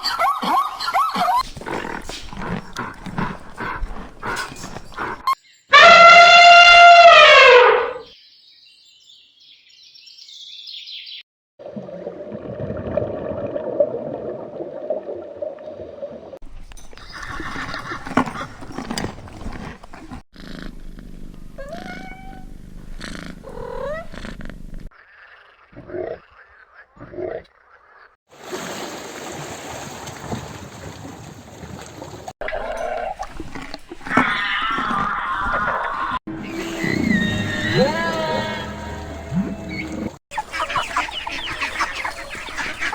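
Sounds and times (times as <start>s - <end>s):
rough growl-like animal sound: 1.4s - 5.4s, 17.1s - 28.2s, 32.4s - 40.2s
upward-sweeping animal calls: 34.1s - 42.9s.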